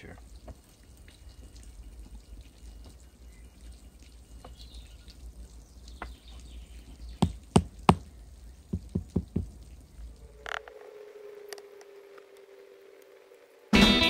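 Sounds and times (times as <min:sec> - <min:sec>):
hand tool knocking bricks: 0:07.2 - 0:08.1.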